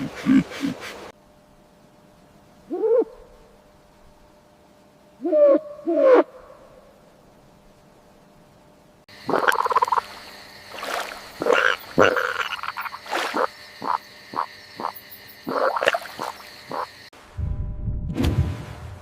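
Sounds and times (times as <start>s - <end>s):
frogs croaking: 9.1s - 17.1s
low-pitched sound: 17.3s - 19.0s.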